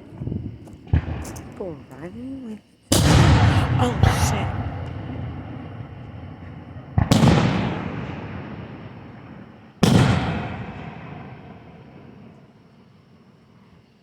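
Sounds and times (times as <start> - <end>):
fireworks shells booming: 0.0 - 12.1.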